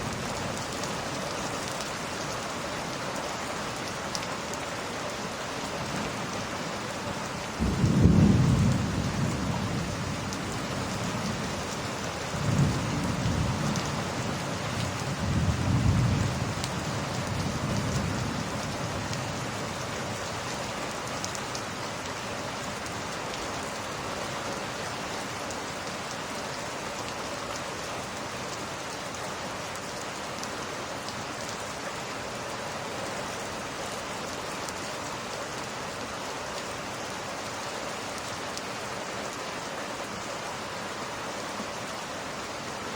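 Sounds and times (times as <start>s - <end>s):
heavy rain: 0.0s - 42.9s
rolling thunder: 7.6s - 11.0s.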